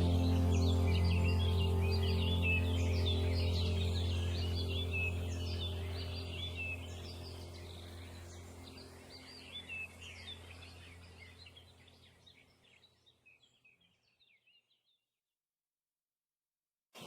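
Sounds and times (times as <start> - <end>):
low steady drone: 0.0 - 12.0
songbirds chirping and trilling: 0.0 - 15.0.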